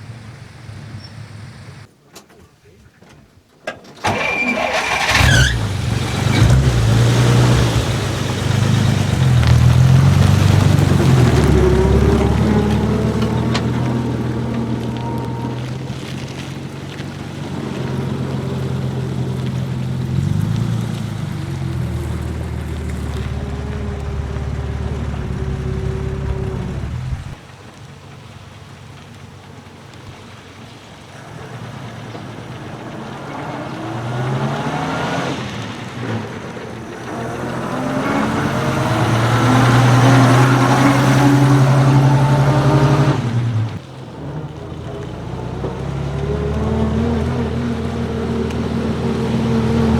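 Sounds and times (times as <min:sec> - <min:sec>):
road noise: 0:00.0 - 0:49.9
car engine running: 0:04.0 - 0:27.4
wind noise: 0:23.8 - 0:27.4.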